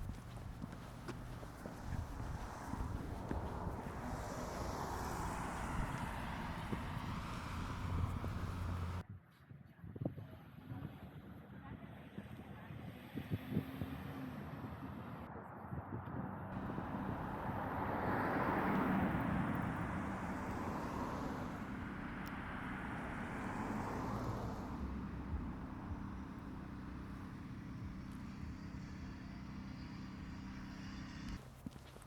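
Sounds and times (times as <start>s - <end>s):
steady low hum: 0.0s - 9.0s
vehicle passing: 0.0s - 9.0s, 16.6s - 31.4s.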